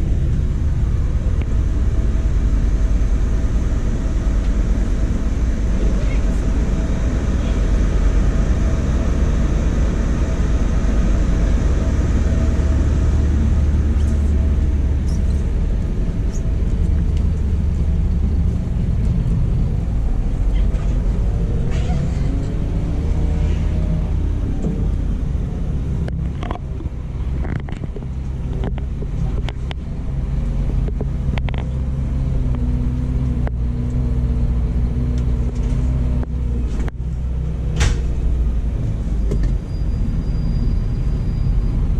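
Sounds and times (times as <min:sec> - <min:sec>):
diesel engine running at low revs: 0:00.0 - 0:41.9
gliding squeal: 0:39.1 - 0:41.9.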